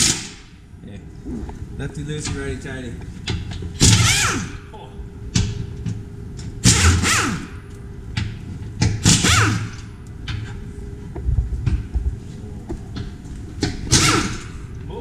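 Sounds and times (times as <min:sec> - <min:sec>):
hardware clicks and knocks: 0:02.2 - 0:04.0, 0:09.8 - 0:14.5.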